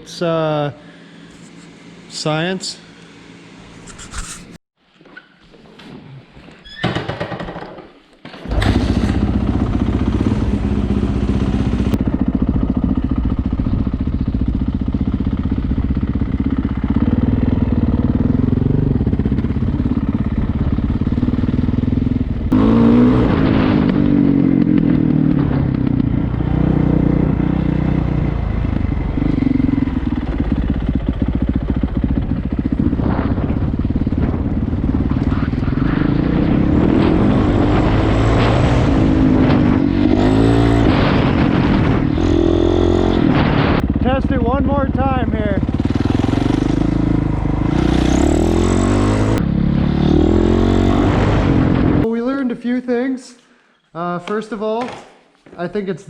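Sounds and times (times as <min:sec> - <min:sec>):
motorcycle engine running: 0:08.5 - 0:52.1.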